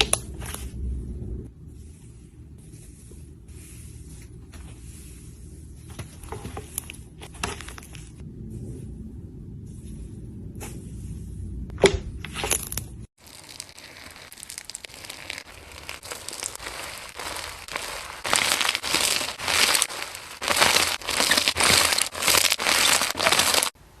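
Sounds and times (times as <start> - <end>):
slime squeezed and crackling: 13.2 - 23.8.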